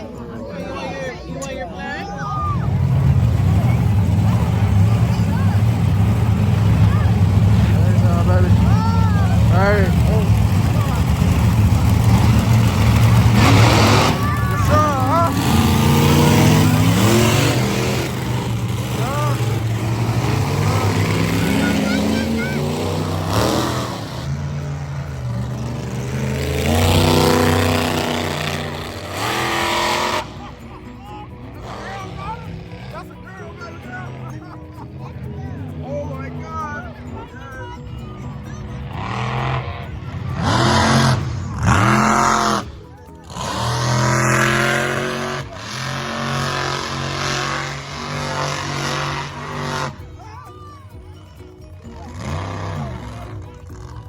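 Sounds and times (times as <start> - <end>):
monster truck engine revving: 0.0 - 54.0.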